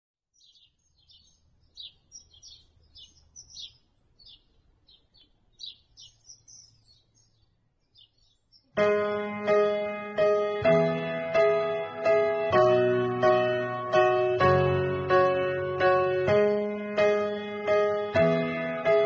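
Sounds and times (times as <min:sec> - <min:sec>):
small birds chirping and twittering: 0:00.3 - 0:09.8.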